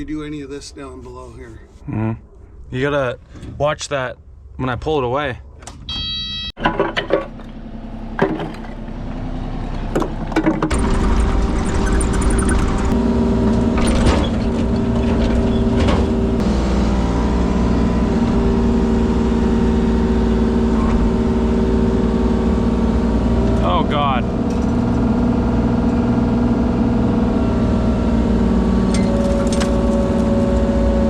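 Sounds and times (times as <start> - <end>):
construction machine engine running: 7.3 - 31.0.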